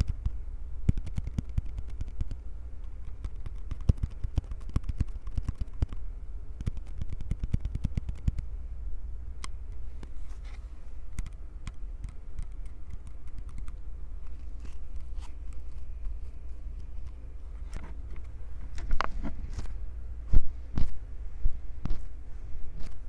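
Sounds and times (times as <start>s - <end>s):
small taps and clicks: 0.0s - 6.0s, 6.6s - 8.5s
microphone handling rumble: 16.8s - 23.0s.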